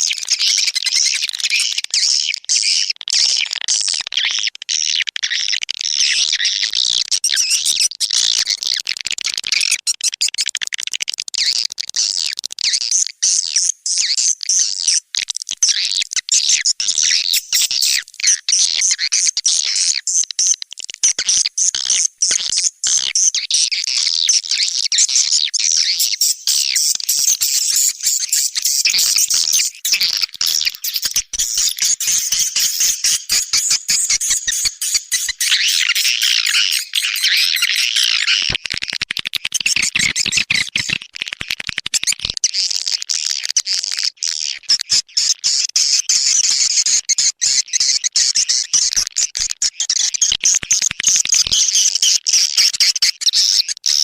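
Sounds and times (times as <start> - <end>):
swiftlet calls chattering: 24.2 - 38.4.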